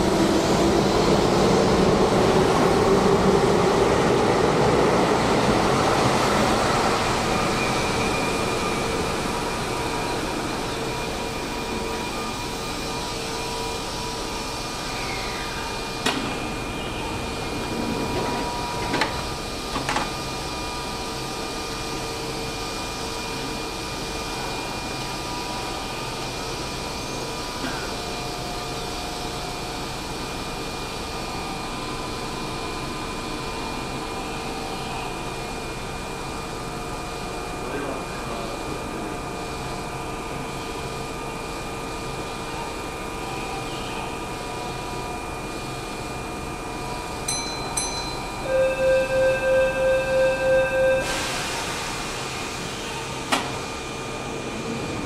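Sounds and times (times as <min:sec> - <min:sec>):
electric train running noise: 0:38.3 - 0:55.0
high held tones: 0:47.3 - 0:51.3.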